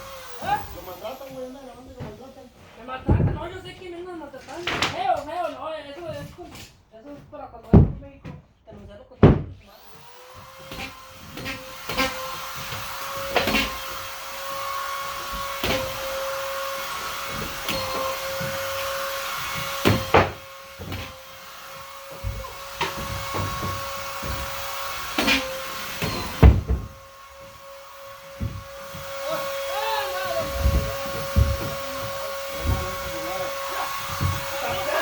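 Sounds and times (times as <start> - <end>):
vacuum cleaner running: 0.0 - 2.8, 9.7 - 35.0
sharp knocks and clunks: 3.0 - 3.6, 15.2 - 27.5, 28.2 - 29.2, 30.4 - 34.7.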